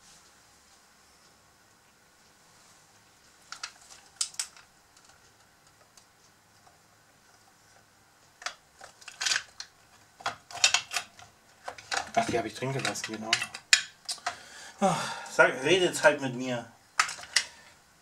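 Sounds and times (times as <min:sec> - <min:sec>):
metal parts clicking and clinking: 0:08.4 - 0:14.3, 0:17.0 - 0:17.5.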